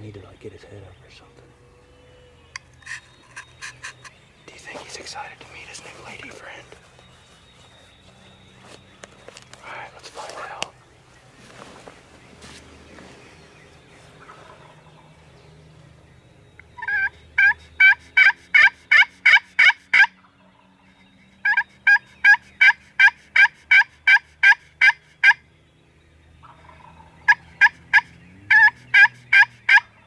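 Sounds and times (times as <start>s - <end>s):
turkey call hen yelps: 16.8s - 20.1s, 21.4s - 25.4s, 26.6s - 29.9s.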